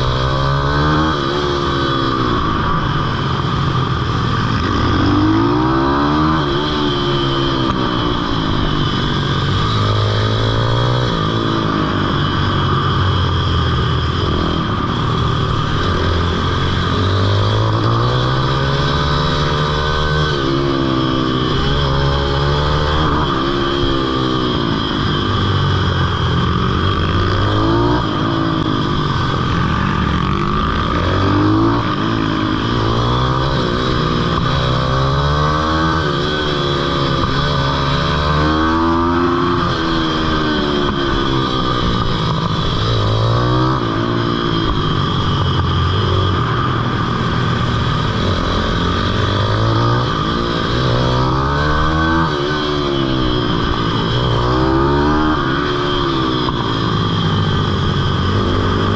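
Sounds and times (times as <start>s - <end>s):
small motorbike engine revving: 0.0s - 58.9s.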